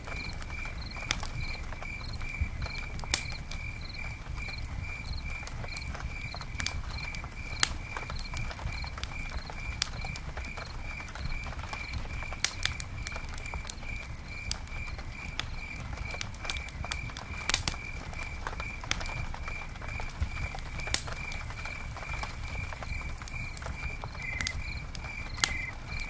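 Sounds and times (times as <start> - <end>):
campfire crackling: 0.0 - 26.0
loud fire pops: 0.0 - 26.0
low flame rumble: 0.0 - 26.0.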